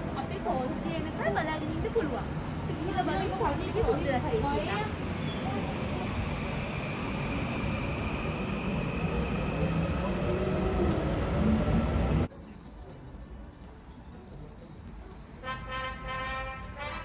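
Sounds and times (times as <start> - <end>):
train rumbling past: 0.0 - 12.3.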